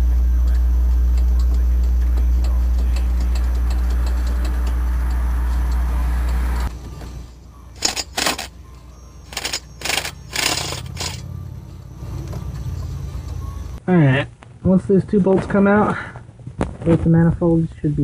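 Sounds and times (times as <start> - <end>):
low hum: 0.0 - 13.8
ratchet wrench clicking: 7.8 - 8.5, 9.3 - 11.2.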